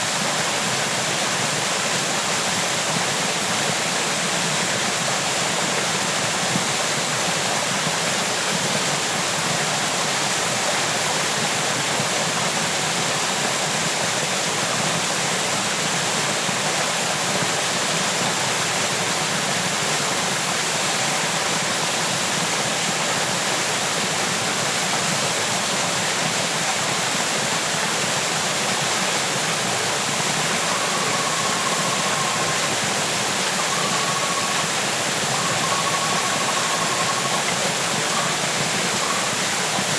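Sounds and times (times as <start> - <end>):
waterfall rushing: 0.0 - 39.9
faint thin whistle-like tone: 30.4 - 39.9.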